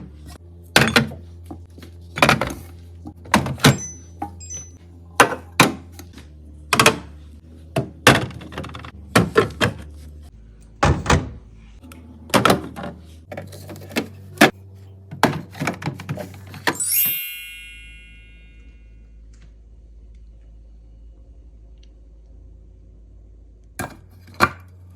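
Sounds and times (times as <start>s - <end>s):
refrigerator hum: 0.0s - 24.9s
containers knocking and clunking: 0.7s - 4.4s, 7.7s - 9.9s, 12.2s - 16.8s.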